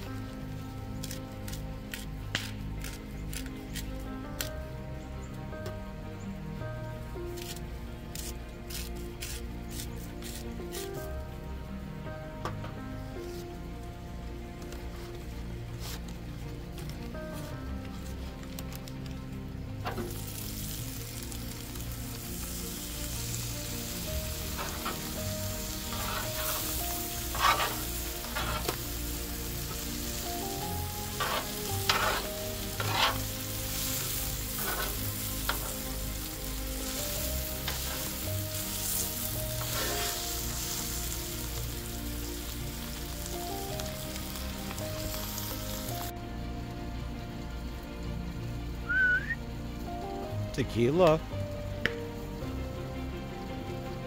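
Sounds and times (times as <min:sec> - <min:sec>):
food sizzling on a griddle: 0:07.3 - 0:11.1, 0:19.8 - 0:46.1, 0:48.3 - 0:49.4.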